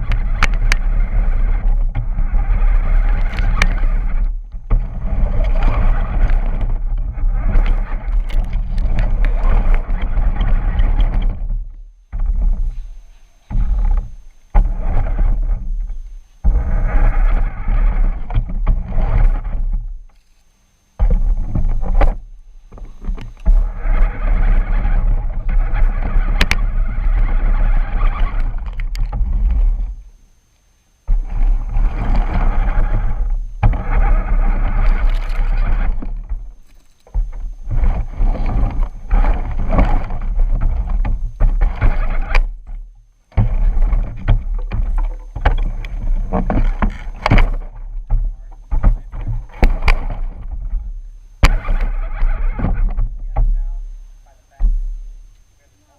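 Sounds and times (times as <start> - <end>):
camera rattling: 0.0 - 11.6, 21.0 - 30.0, 31.0 - 53.1
toy truck rumbling over ground: 0.0 - 19.9, 31.1 - 53.6.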